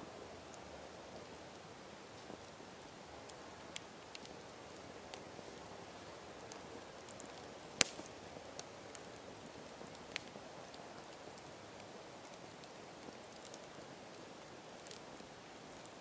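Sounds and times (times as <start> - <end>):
campfire hissing: 0.0 - 16.0
fire crackling: 0.0 - 16.0
loud sharp pop of fire: 7.8 - 8.1.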